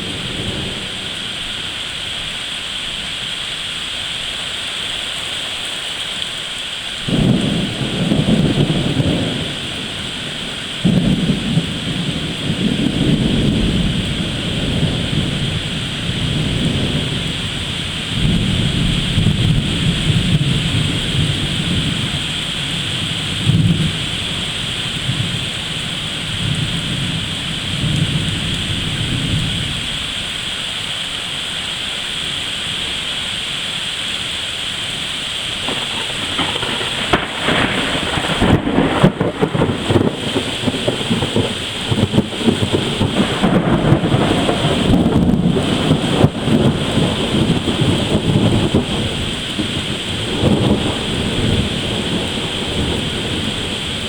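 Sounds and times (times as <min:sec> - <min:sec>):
thunder rumbling: 0:00.0 - 0:02.3, 0:07.0 - 0:30.4, 0:35.4 - 0:54.0
steady rain hiss: 0:00.0 - 0:54.0
sharp thunder cracks: 0:07.1 - 0:24.4, 0:35.6 - 0:54.0.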